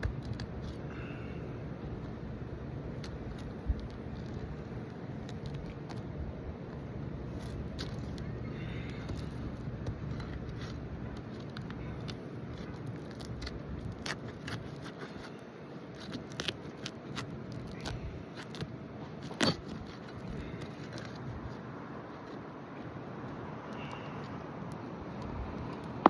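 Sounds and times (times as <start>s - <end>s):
low steady rumble: 0.0s - 26.0s.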